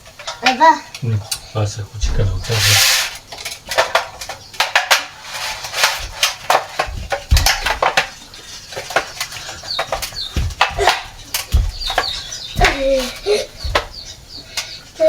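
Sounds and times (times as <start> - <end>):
kitchen utensils clinking: 0.0 - 14.8
bird chirps: 8.2 - 15.0.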